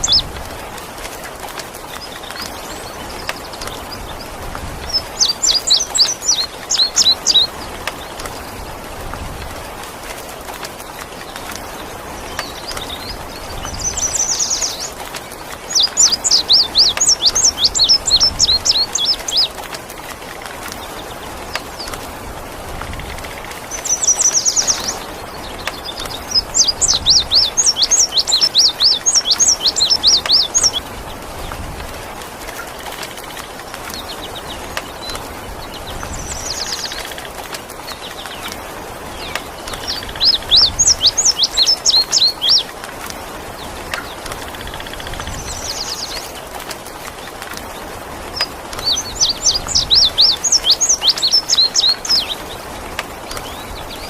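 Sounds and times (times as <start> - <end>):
rain hissing: 0.0 - 54.0
songbird chirping: 0.0 - 54.0.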